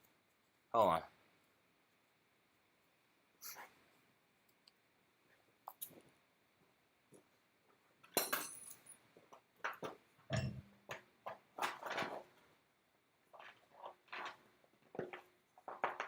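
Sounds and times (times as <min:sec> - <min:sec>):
metal clinking and knocking: 0:08.0 - 0:09.0, 0:09.6 - 0:12.2.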